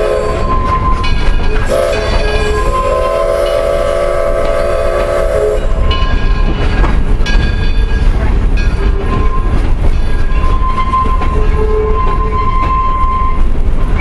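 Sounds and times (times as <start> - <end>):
steam locomotive whistle: 0.0 - 6.0, 10.4 - 13.5
train rumble and rail clatter: 0.0 - 14.0.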